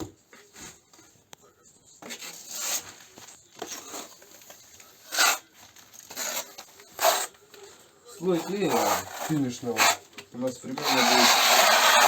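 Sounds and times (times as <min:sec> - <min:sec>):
spatula scraping plaster on wall: 0:02.1 - 0:03.0, 0:05.0 - 0:05.5, 0:06.1 - 0:07.3, 0:08.3 - 0:10.0, 0:10.6 - 0:12.0.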